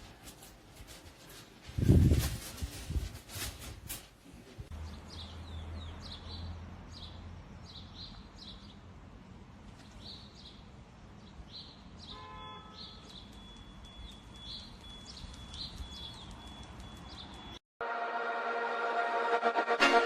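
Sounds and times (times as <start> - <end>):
small birds chirping: 4.7 - 8.9, 9.7 - 17.6
brief tonal sound: 17.8 - 20.0.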